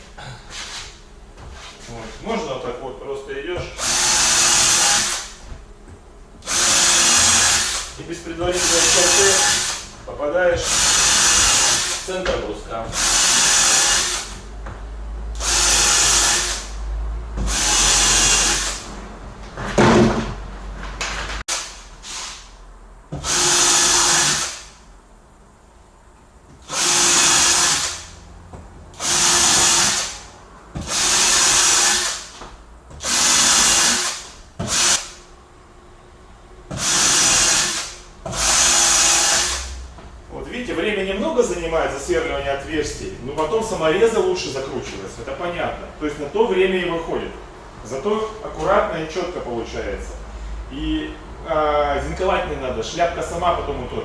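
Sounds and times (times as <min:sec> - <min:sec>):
power drill boring into wood: 0:03.8 - 0:05.3, 0:06.4 - 0:08.0, 0:08.6 - 0:09.8, 0:10.6 - 0:12.1, 0:13.0 - 0:14.4, 0:15.4 - 0:16.7, 0:17.4 - 0:18.8, 0:23.2 - 0:24.7, 0:26.6 - 0:28.1, 0:29.0 - 0:30.2, 0:30.8 - 0:32.3, 0:33.0 - 0:35.1, 0:36.7 - 0:39.6.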